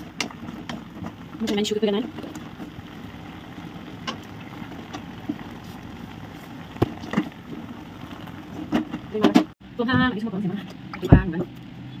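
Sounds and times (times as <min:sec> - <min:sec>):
bamboo shoots sizzling in oil: 0:00.0 - 0:09.3.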